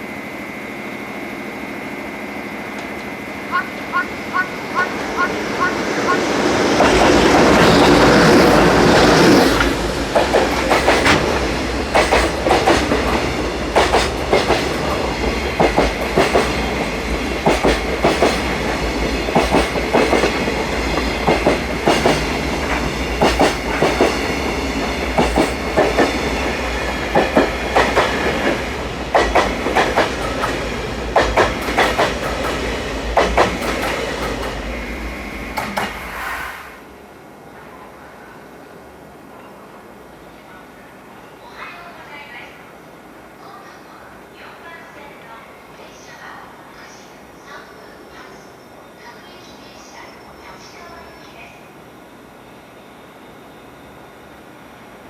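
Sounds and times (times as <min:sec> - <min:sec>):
freight train wheels clacking: 0:02.6 - 0:36.4.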